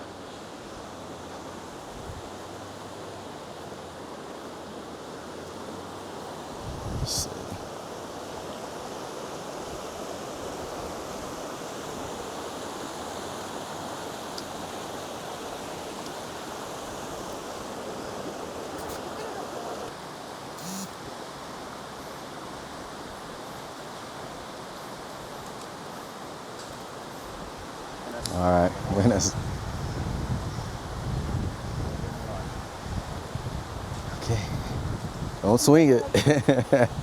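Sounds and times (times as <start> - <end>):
water rushing over rocks: 7.2 - 29.4.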